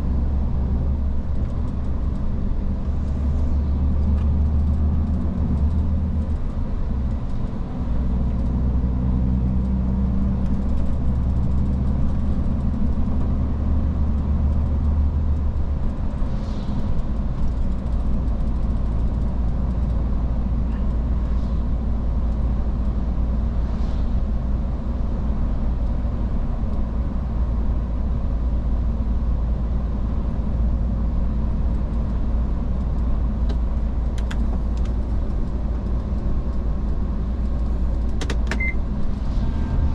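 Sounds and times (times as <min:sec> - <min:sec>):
diesel truck engine drone: 0:00.0 - 0:39.9
road noise: 0:00.0 - 0:39.9.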